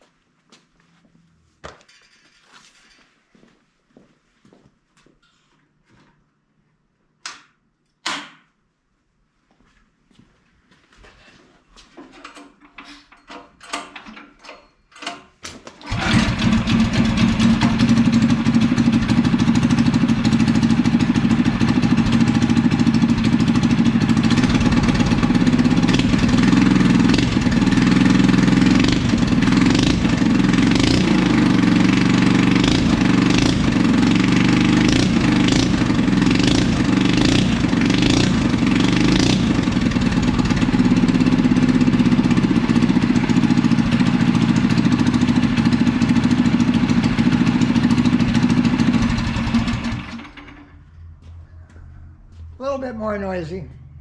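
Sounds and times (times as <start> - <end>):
single-cylinder engine cranking and running: 15.8 - 50.8.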